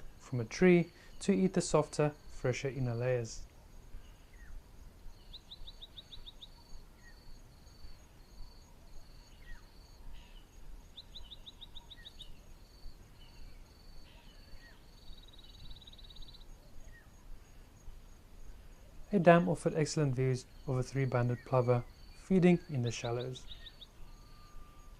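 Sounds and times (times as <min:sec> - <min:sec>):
insect chirping: 0:00.0 - 0:24.9
birds calling: 0:09.2 - 0:17.1, 0:19.2 - 0:24.9
short down-slurred whistles: 0:24.1 - 0:24.9.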